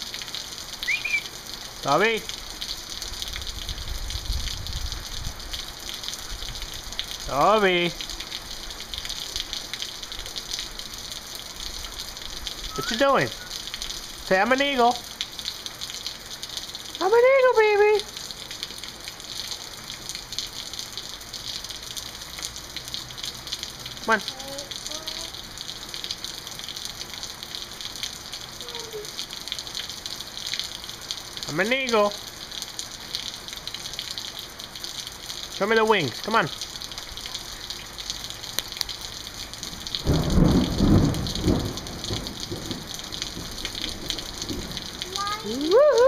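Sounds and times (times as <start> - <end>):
steady rain falling: 0.0 - 46.0
thunder rumbling: 40.0 - 45.0.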